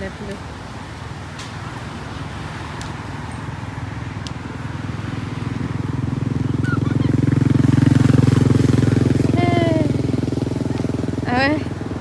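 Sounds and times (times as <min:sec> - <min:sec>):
engine with pulsing beat: 0:05.6 - 0:12.0.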